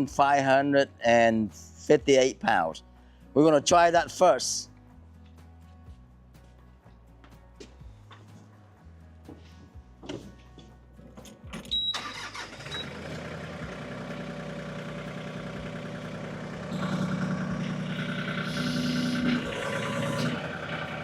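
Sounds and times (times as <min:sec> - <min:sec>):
tractor diesel engine starting and running: 0:11.2 - 0:21.0.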